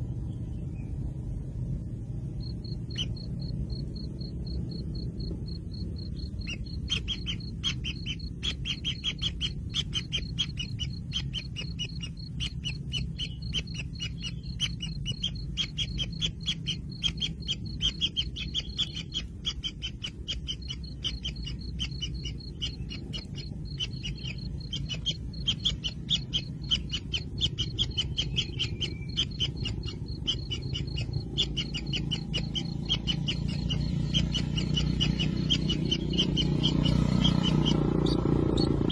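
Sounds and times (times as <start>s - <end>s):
low rumble: 0.0s - 19.4s
nestlings begging chatter: 2.3s - 38.9s.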